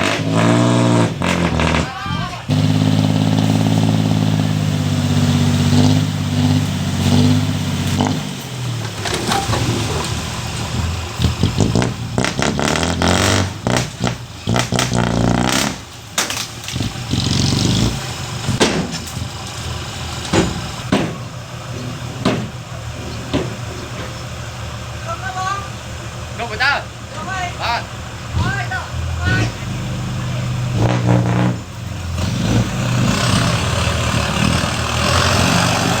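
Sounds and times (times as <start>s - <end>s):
heavy machinery engine running: 0.0s - 36.0s
sharp knocks and clanks: 7.8s - 24.4s.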